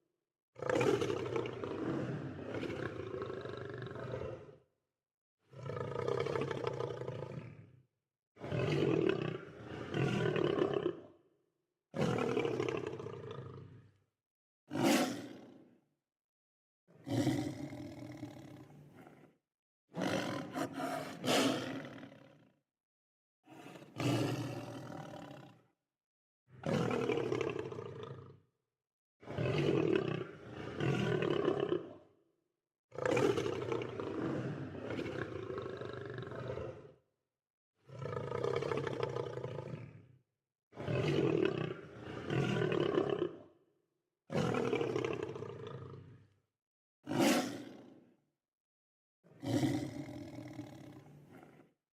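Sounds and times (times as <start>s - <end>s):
lion roaring: 17.0s - 19.3s, 20.0s - 22.4s, 33.0s - 36.9s, 37.9s - 40.0s, 41.5s - 43.4s, 47.1s - 47.8s, 49.4s - 51.7s.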